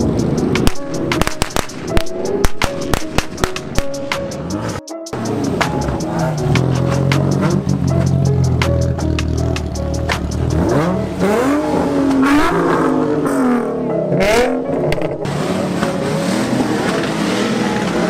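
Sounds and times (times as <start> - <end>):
car engine revving: 0.0 - 18.0
sharp crack: 0.6 - 4.2.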